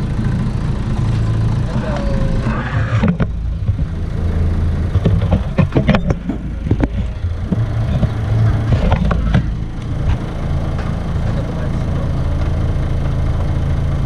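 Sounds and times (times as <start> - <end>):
bus engine idling: 0.0 - 14.0
sharp knocks and clicks: 2.9 - 4.0, 4.8 - 11.0.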